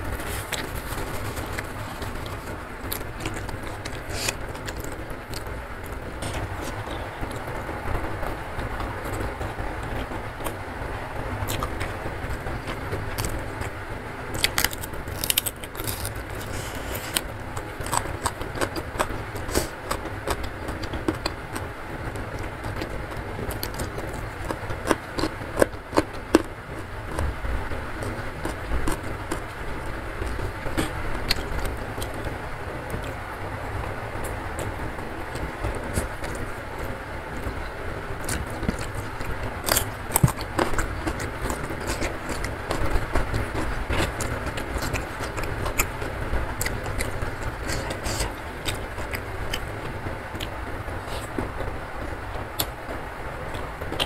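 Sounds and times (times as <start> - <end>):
crunchy clicks: 0.0 - 27.4, 34.2 - 51.6
steady noisy background: 0.0 - 54.0.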